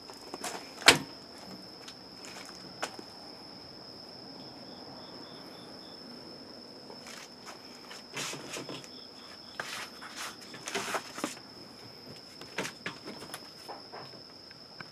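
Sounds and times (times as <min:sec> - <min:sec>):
high-pitched insect trill: 0:00.0 - 0:14.9
scuffing and rustling: 0:01.7 - 0:03.1, 0:07.0 - 0:12.8.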